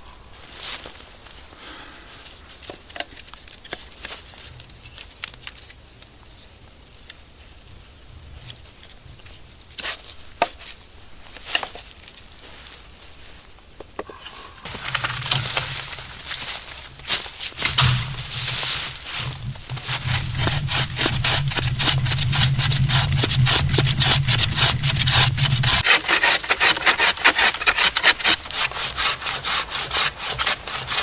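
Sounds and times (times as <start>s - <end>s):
dry leaves rustling: 0.4s - 2.0s, 14.4s - 31.0s
twigs snapping: 14.7s - 25.9s.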